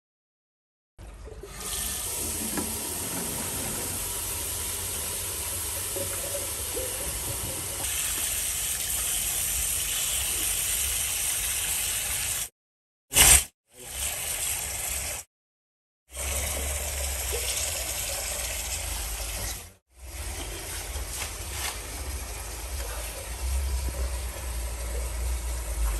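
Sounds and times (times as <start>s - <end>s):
water running under pressure: 1.3s - 12.5s, 16.1s - 25.9s.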